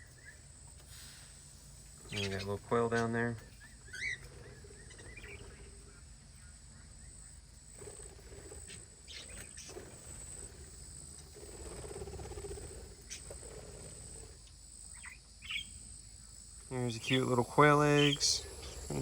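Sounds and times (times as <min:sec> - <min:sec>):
insects trilling: 0:00.0 - 0:19.0
small birds chirping: 0:00.0 - 0:19.0
low muffled sounds: 0:16.7 - 0:19.0.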